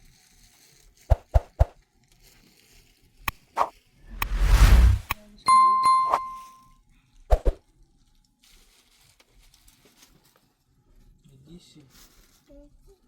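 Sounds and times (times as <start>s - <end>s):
short rushing noise: 3.6s - 5.2s
ringing metallic ding: 5.5s - 6.5s.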